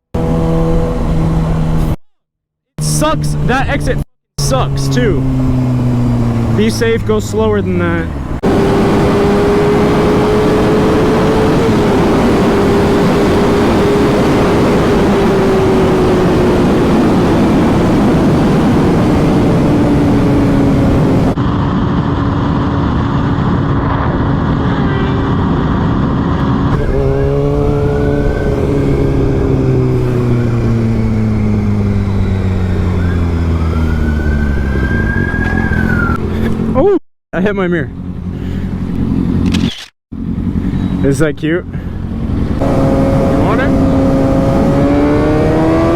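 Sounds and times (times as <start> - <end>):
motorcycle engine at speed: 0.0 - 2.0, 2.8 - 36.9, 37.8 - 45.9
wind rush: 5.2 - 36.7, 41.9 - 45.9.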